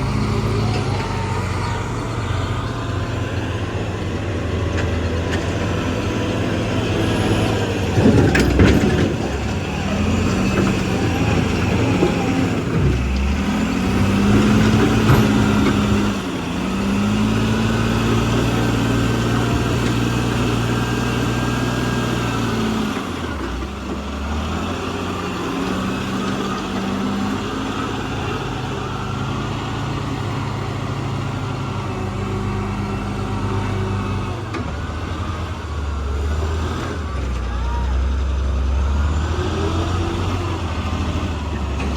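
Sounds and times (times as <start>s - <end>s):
diesel engine revving: 0.0s - 41.9s
loud clatter: 6.8s - 16.3s.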